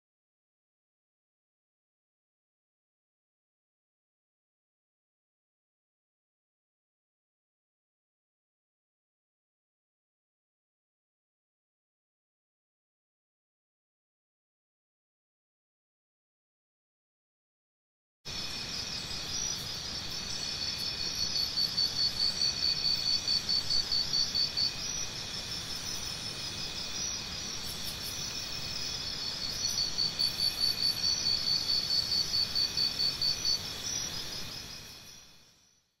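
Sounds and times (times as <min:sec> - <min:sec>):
crickets trilling: 0:18.3 - 0:35.9
loud pulsing cricket chirps: 0:18.3 - 0:36.0.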